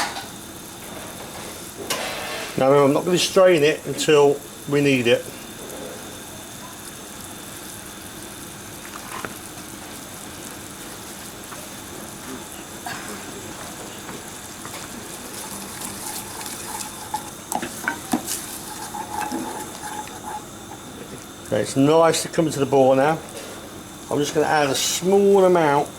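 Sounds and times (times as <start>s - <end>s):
sauce sizzling and bubbling: 0.0s - 25.9s
utensils clicking against pans: 14.8s - 21.2s.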